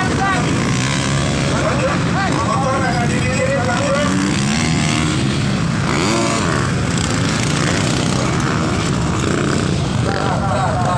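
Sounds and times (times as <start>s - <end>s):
dirt bike engines revving: 0.0s - 10.9s.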